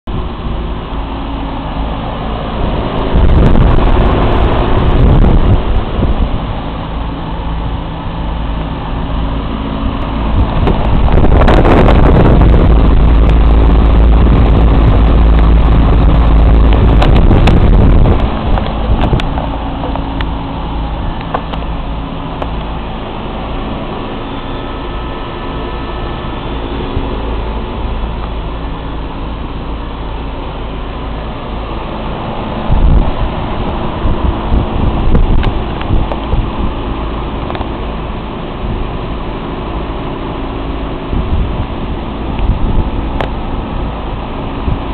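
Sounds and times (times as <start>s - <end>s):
air conditioning unit humming: 0.0s - 44.9s
loud low rumble: 0.0s - 44.9s.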